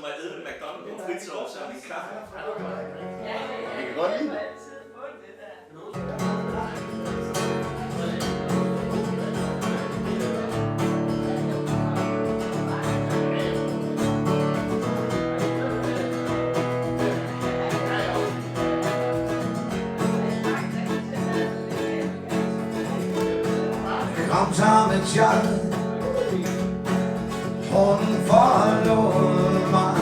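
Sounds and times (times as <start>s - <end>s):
acoustic guitar strumming: 2.6s - 5.3s, 5.9s - 30.0s
accompanying instruments: 6.3s - 30.0s.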